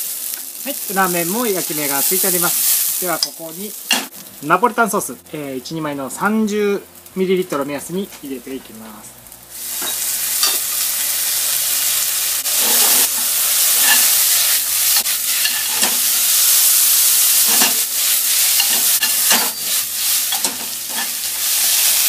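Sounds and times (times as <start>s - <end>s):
noodles stirred and pan tossed: 0.0s - 4.1s, 9.5s - 22.0s
noodles sizzling in a pan: 0.0s - 4.7s, 9.2s - 22.0s.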